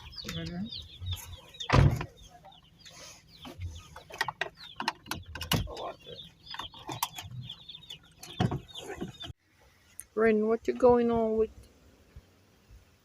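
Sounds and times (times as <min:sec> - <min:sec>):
birds chirping: 0:00.0 - 0:09.4
loud thump: 0:01.7 - 0:02.1.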